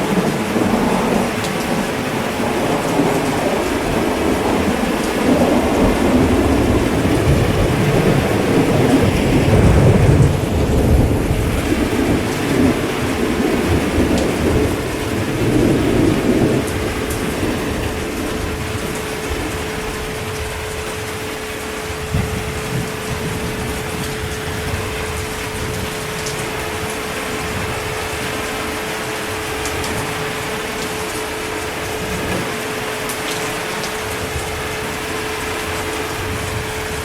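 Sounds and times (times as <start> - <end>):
heavy rain: 0.0 - 37.0
rolling thunder: 0.0 - 37.0.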